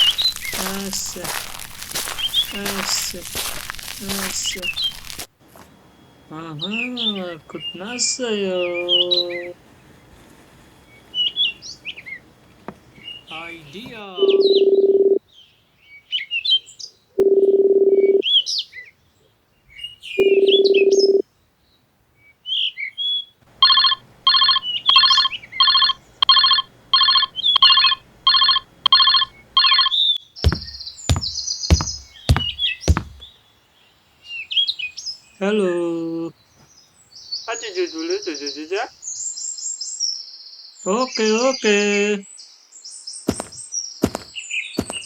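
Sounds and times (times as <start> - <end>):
birds chirping: 0.0 - 21.2, 23.6 - 45.0
long steady beeps: 14.2 - 15.2, 20.2 - 21.2, 23.6 - 30.6.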